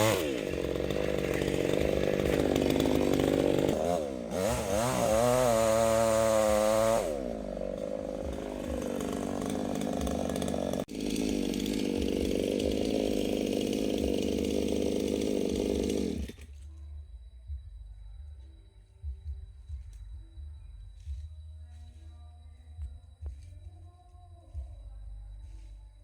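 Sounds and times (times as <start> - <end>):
chainsaw running: 0.0 - 16.7.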